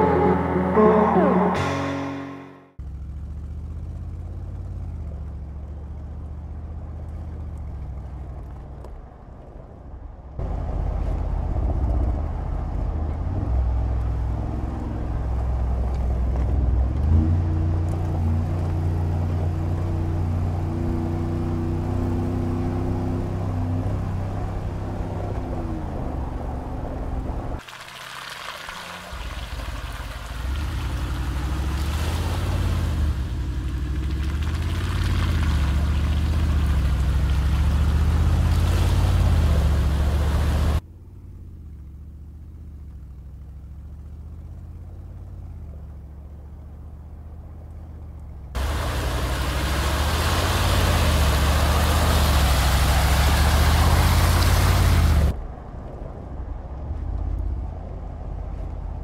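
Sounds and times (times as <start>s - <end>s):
suv engine running under load: 2.8s - 59.0s.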